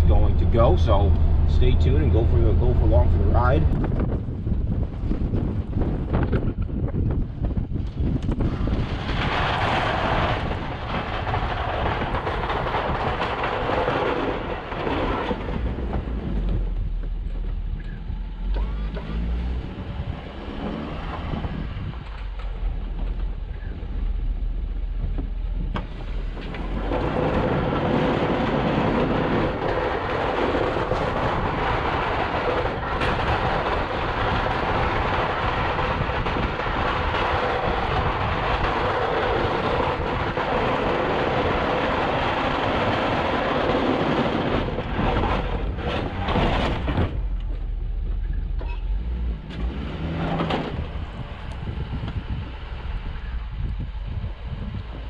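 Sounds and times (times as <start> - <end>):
low engine rumble: 0.0 - 55.0
snow plow scraping snow: 7.8 - 17.7, 18.5 - 53.3.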